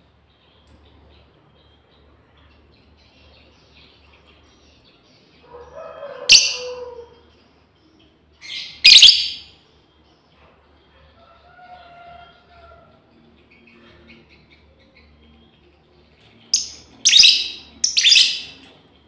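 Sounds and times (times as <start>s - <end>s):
lovebirds chirping: 0.3s - 7.1s, 8.0s - 9.6s, 16.2s - 18.8s
shrill screeching bird calls: 6.0s - 7.2s, 8.6s - 9.5s.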